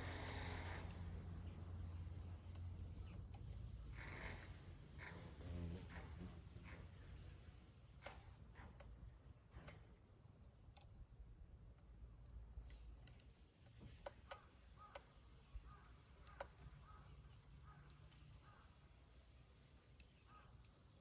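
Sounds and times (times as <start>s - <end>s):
small fire crackling: 0.0s - 21.0s
faint bird chirps: 14.4s - 19.1s, 19.8s - 21.0s.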